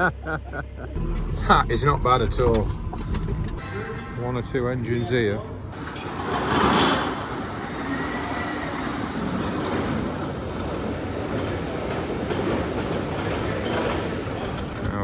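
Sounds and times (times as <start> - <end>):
engine and hydraulics running: 1.0 - 15.0
thin high squeal: 3.6 - 10.1.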